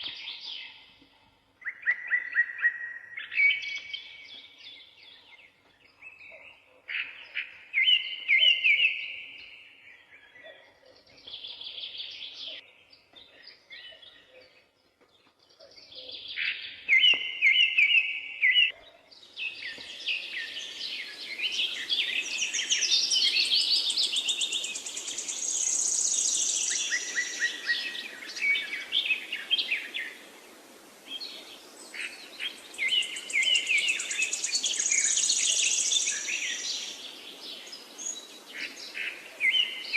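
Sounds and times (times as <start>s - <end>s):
songbirds singing: 0.0s - 39.9s
steady background hiss: 19.2s - 39.9s.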